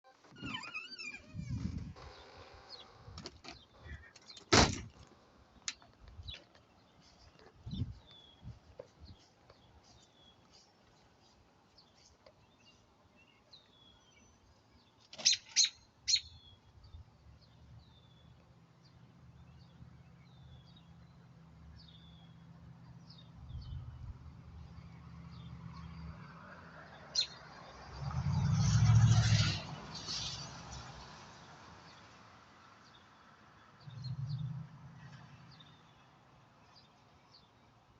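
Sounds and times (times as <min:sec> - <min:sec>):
low bumps: 0:00.2 - 0:03.8
small birds chirping: 0:05.7 - 0:24.0.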